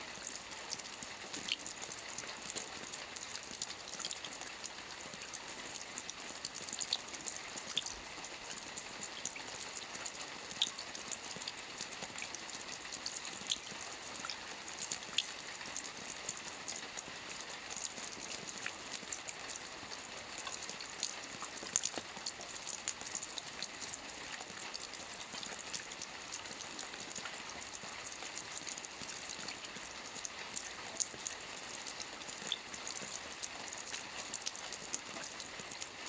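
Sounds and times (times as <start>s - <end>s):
rain falling: 0.1s - 36.0s
raindrops tapping on a surface: 0.2s - 36.0s.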